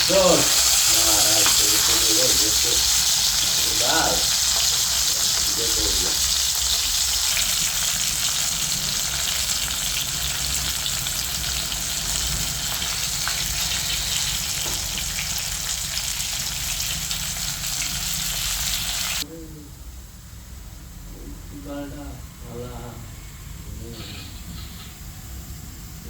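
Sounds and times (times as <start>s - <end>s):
fish frying in hot oil: 0.0s - 19.2s.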